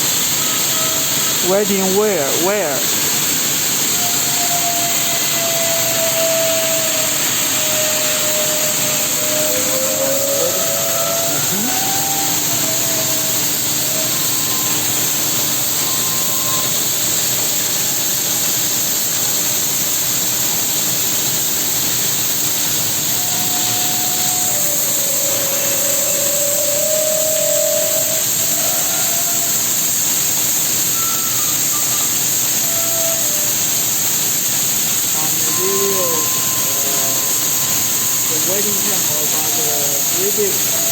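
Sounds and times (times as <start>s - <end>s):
industrial machinery hiss and hum: 0.0s - 40.9s
faint short whistling tones: 30.8s - 33.5s, 35.2s - 40.9s.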